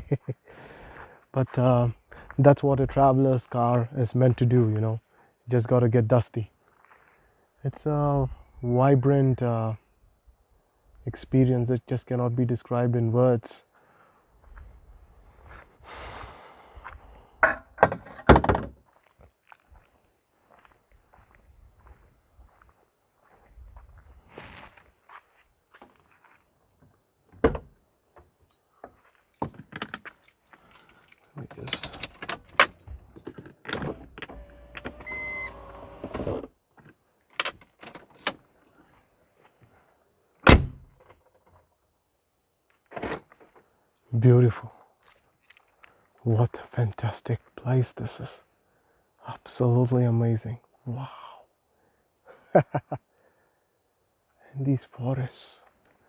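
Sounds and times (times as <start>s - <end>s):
clicks and rattles in a car: 17.4s - 18.8s, 29.4s - 36.5s, 37.3s - 38.5s
electric window motor: 33.8s - 36.5s
loud thump: 40.5s - 40.8s
car door thunking shut: 40.5s - 40.9s.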